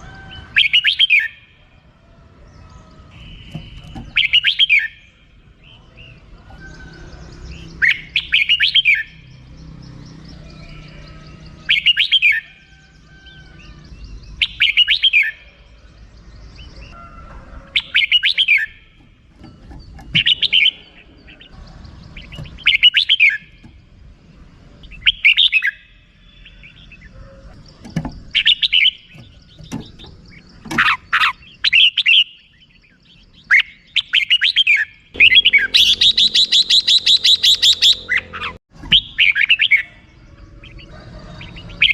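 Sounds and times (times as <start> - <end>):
bird sharp chattering call: 3.1 - 5.2, 24.8 - 40.0.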